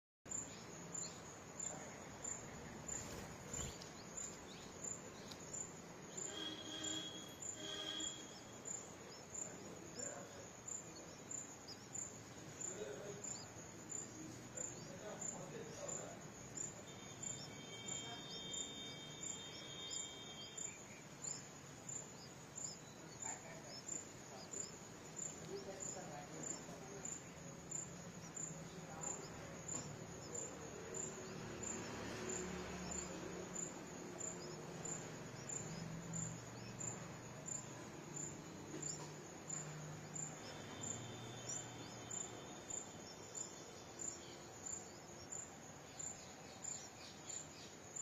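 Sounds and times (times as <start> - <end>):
insect chirping: 0.3 - 48.0.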